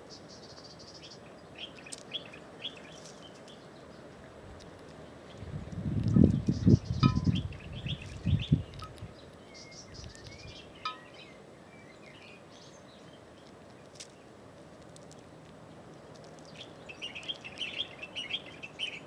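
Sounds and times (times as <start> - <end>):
songbirds chirping: 0.0 - 19.0
low rumbling on microphone: 5.4 - 9.1.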